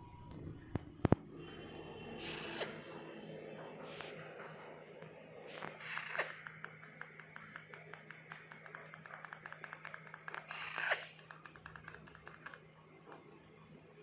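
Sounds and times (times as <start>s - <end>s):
rapid faint clicks: 5.0s - 13.3s.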